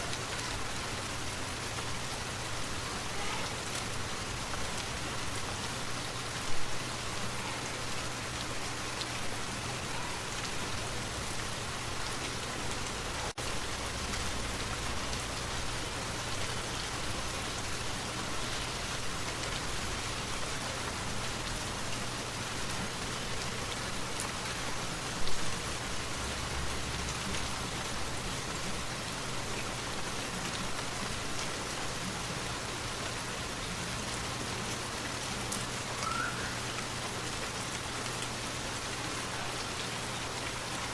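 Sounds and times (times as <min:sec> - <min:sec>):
waterfall rushing: 0:36.0 - 0:37.0.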